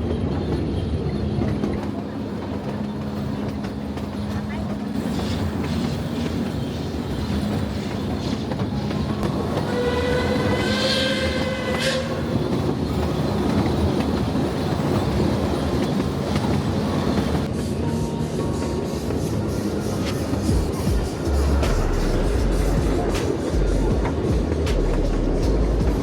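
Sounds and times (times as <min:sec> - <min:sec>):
steam train rumbling on rails: 0:00.0 - 0:26.0
steam whistle blast: 0:09.7 - 0:12.2.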